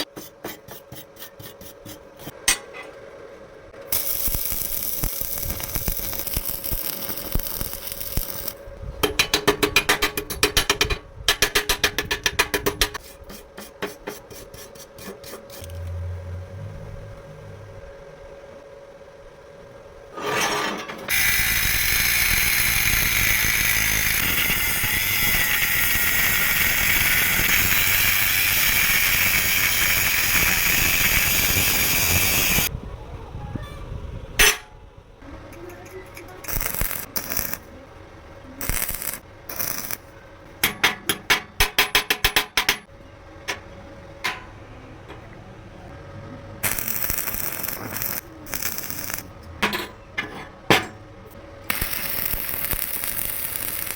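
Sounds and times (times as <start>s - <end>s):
angle grinder on metal: 21.1s - 32.7s, 46.6s - 49.3s, 51.7s - 53.9s.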